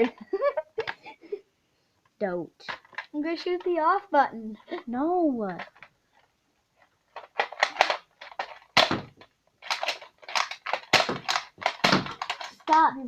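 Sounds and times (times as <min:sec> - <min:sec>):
sharp clicks and crackles: 0:05.4 - 0:12.9.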